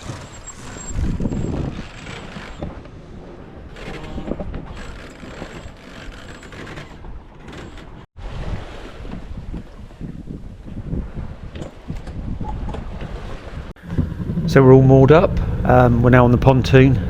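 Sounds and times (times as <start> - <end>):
wind rushing: 0.0 - 3.8, 8.2 - 15.8
yacht creaking and clicking: 0.0 - 8.1, 11.4 - 13.6.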